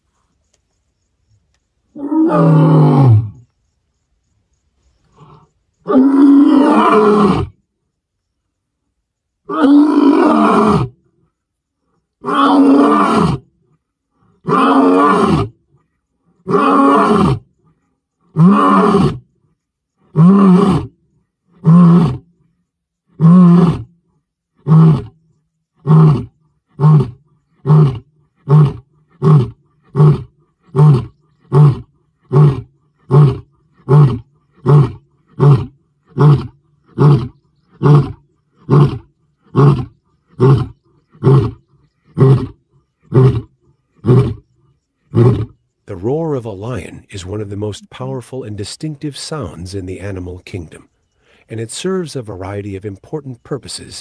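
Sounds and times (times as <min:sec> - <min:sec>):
lion roaring: 0:02.0 - 0:03.4, 0:05.2 - 0:07.6, 0:09.5 - 0:10.9, 0:12.2 - 0:13.4, 0:14.4 - 0:15.5, 0:16.4 - 0:17.4, 0:18.3 - 0:19.2, 0:20.1 - 0:20.9, 0:21.6 - 0:22.2, 0:23.2 - 0:23.9, 0:24.6 - 0:25.2, 0:25.8 - 0:46.2.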